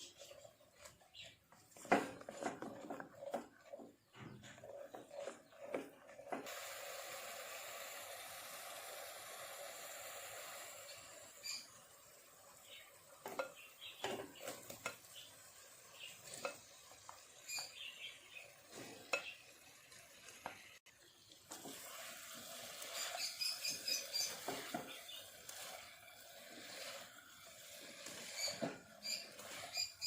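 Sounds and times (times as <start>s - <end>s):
utensil scraping and tapping pan: 0.0s - 6.5s, 13.2s - 18.0s, 18.6s - 20.8s, 22.8s - 30.0s
food sizzling in a frying pan: 6.4s - 30.0s.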